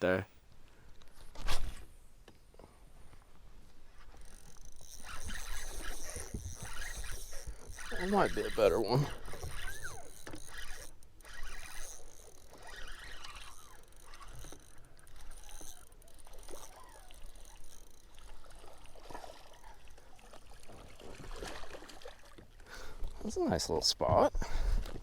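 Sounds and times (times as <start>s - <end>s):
faint water sounds: 2.4s - 25.0s.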